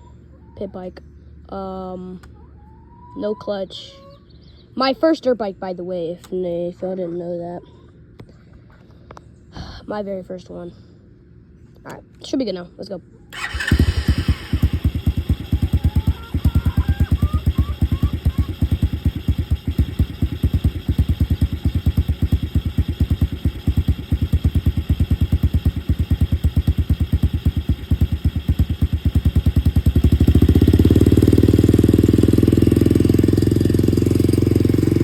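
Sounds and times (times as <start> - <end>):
motorcycle engine idling: 13.3 - 35.0.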